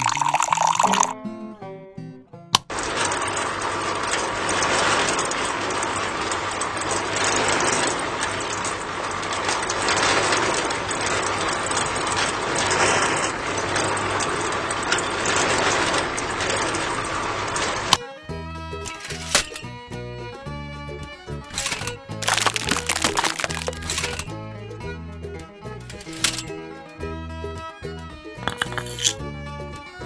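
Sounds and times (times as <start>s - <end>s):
small engine rattling: 25.8s - 26.5s.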